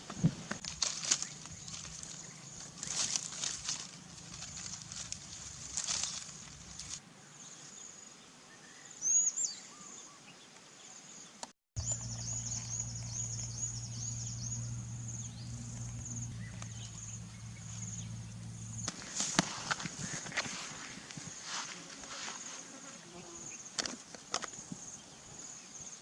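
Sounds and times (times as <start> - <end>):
high insect drone: 0.6 - 7.0, 11.8 - 26.0
low hum: 0.6 - 7.0, 11.8 - 20.8
birds chirping: 0.6 - 21.8.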